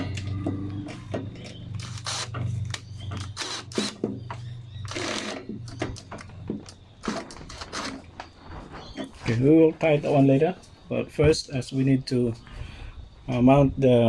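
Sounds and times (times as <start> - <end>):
hands clicking and scraping parts: 0.0 - 9.4.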